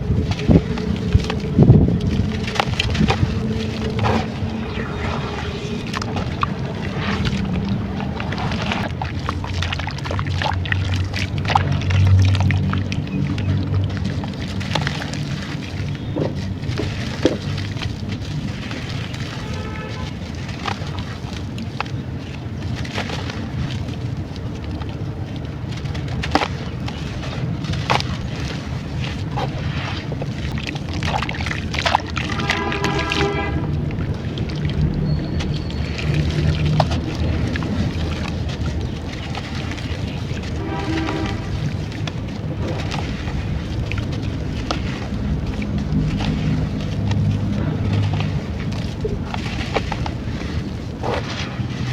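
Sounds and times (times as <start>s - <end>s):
sharp crackles: 0.0s - 11.8s
steady low hum: 0.0s - 18.5s
wet low rumble: 0.0s - 51.9s.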